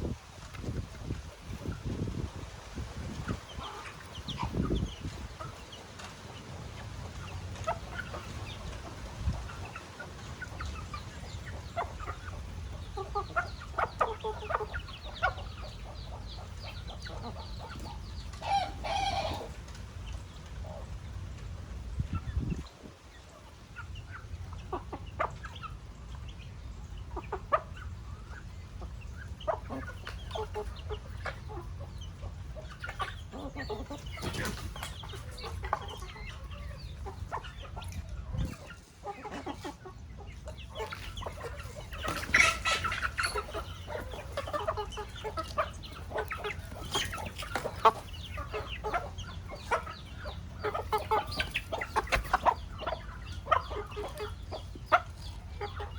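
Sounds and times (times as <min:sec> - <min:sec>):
chickens clucking: 0:00.0 - 0:55.9.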